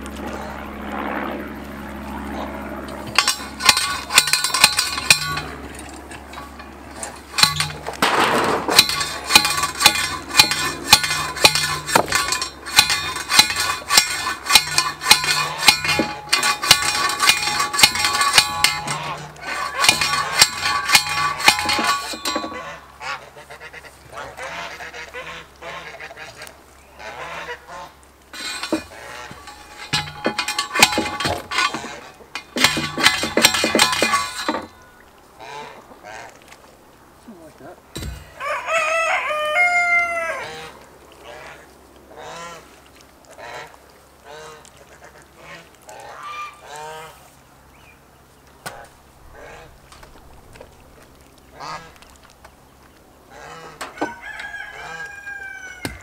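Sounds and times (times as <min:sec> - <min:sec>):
geese honking: 0:02.3 - 0:32.4, 0:35.4 - 0:36.4, 0:38.3 - 0:47.3, 0:48.6 - 0:49.8, 0:51.5 - 0:52.0, 0:53.2 - 0:56.0.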